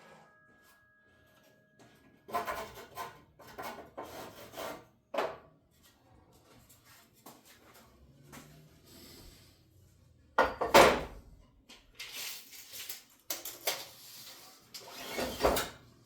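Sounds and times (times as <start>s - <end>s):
scraping on wood: 2.3s - 5.4s.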